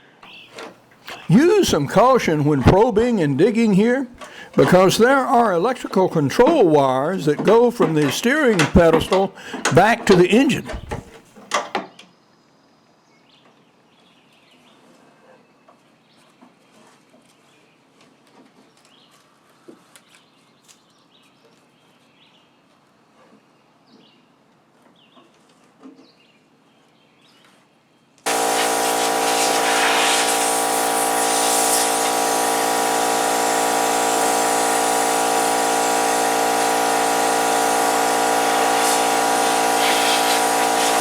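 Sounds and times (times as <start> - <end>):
blower whining with rushing air: 28.3 - 41.0.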